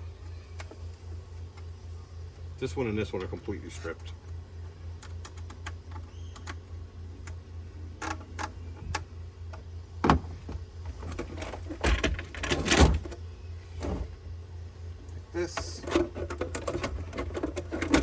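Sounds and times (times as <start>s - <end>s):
steady low hum: 0.0s - 18.0s
plastic parts clicking and clattering: 10.9s - 13.2s, 15.5s - 18.0s.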